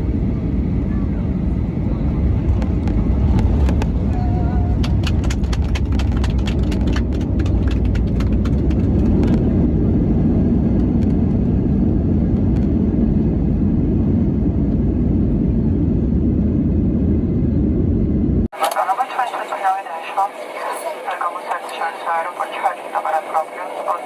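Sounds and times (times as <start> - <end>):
vehicle interior rumble: 0.0 - 12.8.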